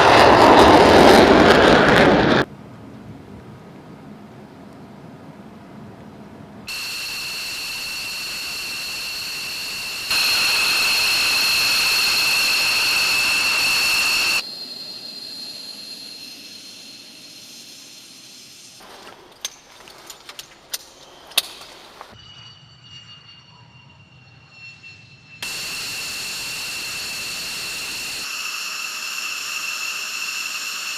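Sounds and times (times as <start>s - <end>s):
jet engine whine: 0.0s - 2.5s, 6.5s - 18.8s, 23.0s - 30.9s
rushing noise: 6.7s - 18.8s, 24.4s - 30.9s.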